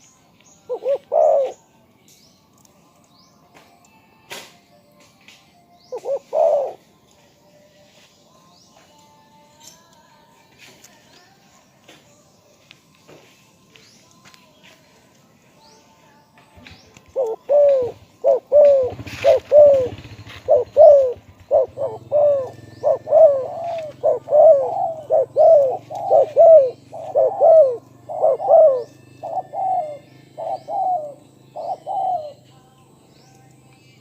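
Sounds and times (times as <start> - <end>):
dove cooing: 0.6 - 1.6, 5.8 - 6.9, 16.6 - 32.4.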